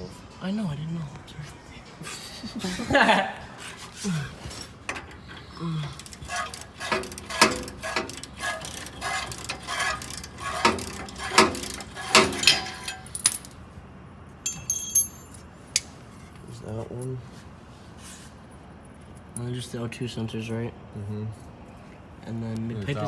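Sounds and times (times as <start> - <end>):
metallic clinks of tools: 10.1 - 13.6, 14.4 - 15.9.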